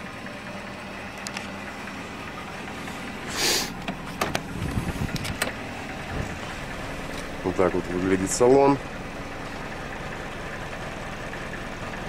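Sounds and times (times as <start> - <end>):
car engine idling: 0.0 - 12.0
short hiss: 3.3 - 3.8.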